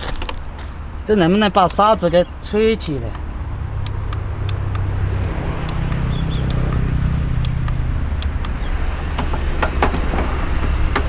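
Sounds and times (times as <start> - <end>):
light handling clicks: 0.0 - 0.8, 1.5 - 2.1, 2.9 - 11.0
electric fan motor hum: 0.0 - 11.0.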